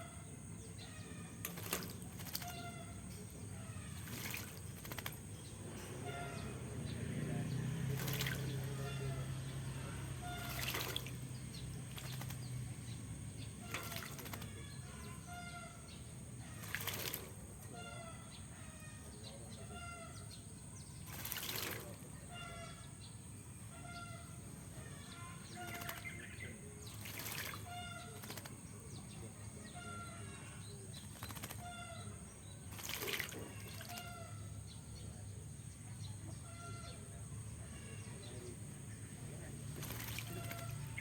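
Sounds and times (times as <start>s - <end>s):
bird splashing water: 0.8s - 18.3s, 21.0s - 34.8s, 39.4s - 41.0s
wings fluttering: 1.1s - 6.5s, 7.6s - 9.0s, 10.0s - 15.7s, 16.4s - 17.8s, 21.0s - 22.5s, 25.1s - 29.1s, 30.8s - 34.5s, 39.5s - 41.0s.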